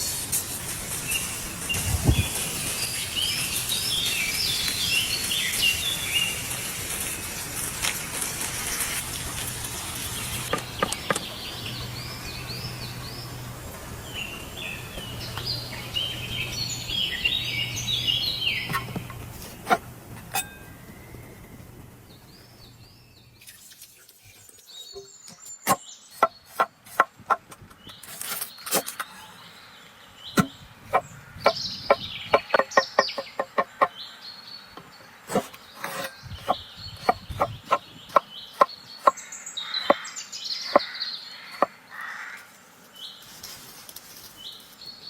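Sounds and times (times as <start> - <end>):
steady high hiss: 0.0 - 10.6
birds singing whistled notes: 1.0 - 6.5, 14.0 - 19.0, 27.8 - 41.7.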